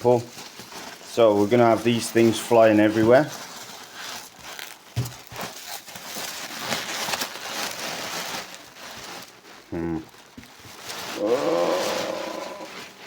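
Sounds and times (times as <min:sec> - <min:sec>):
rustling packing peanuts: 0:00.0 - 0:13.0
person grunting: 0:09.7 - 0:10.1, 0:11.2 - 0:12.8.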